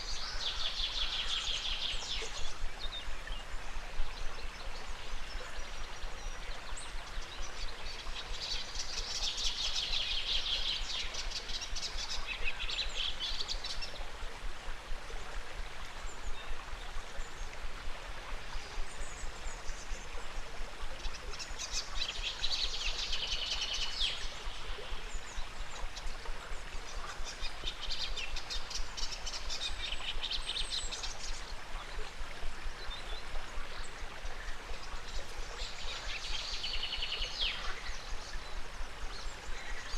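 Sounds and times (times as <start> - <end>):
river flowing: 0.0 - 39.9
songbirds trilled chirping: 18.2 - 39.9.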